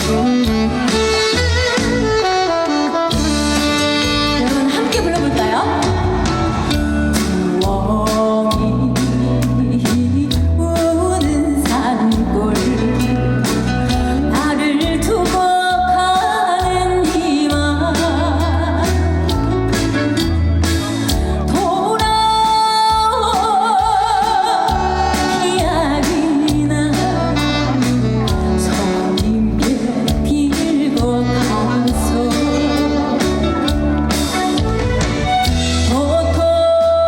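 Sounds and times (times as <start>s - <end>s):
woman singing with vibrato: 4.0s - 19.2s, 21.4s - 33.7s, 35.8s - 37.0s.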